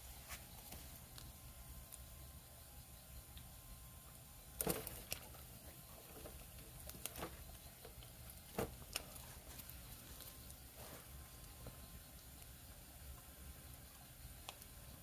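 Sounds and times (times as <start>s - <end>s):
firewood crackling and popping: 4.5s - 15.0s.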